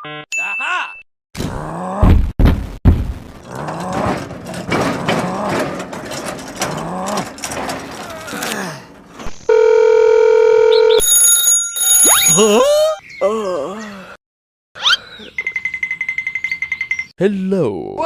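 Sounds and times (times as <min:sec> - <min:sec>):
high tones: 0:09.3 - 0:12.9
electronic alarm tone: 0:09.4 - 0:12.8.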